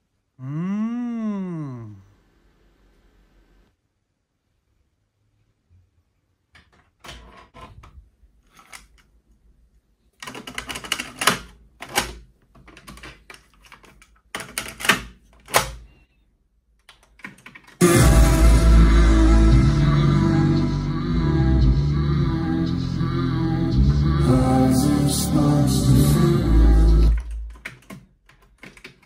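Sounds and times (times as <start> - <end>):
clicks and knocks of handling: 10.2 - 15.8, 27.5 - 29.0
rock music from speakers: 17.8 - 27.0.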